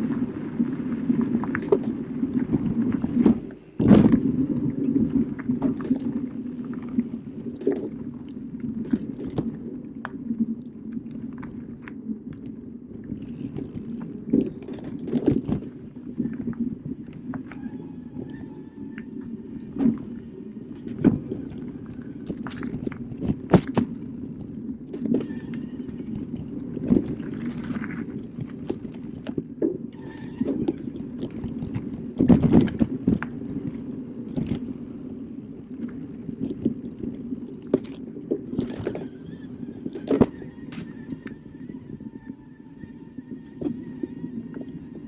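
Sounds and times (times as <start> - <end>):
bike knocking and rattling: 22.4 - 25.4, 26.5 - 38.0.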